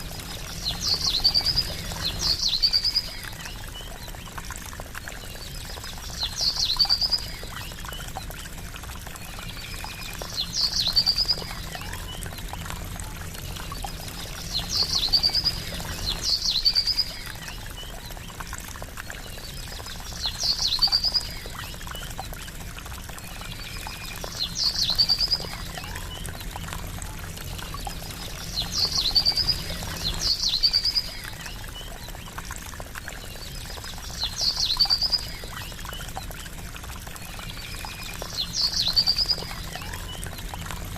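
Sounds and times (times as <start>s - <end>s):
water trickling: 0.0s - 40.9s.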